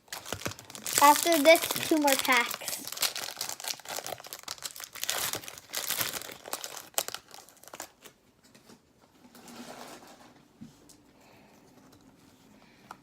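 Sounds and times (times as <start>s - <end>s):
foil wrapper crinkling and tearing: 0.0s - 8.2s
handling of cards: 0.0s - 8.7s.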